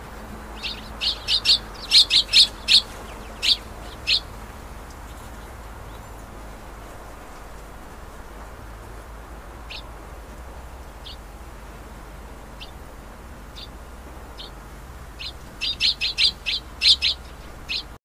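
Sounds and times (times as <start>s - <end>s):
steady background noise: 0.0s - 18.0s
bird chirping: 0.4s - 6.4s, 9.6s - 9.9s, 10.8s - 11.2s, 12.6s - 12.8s, 13.5s - 18.0s.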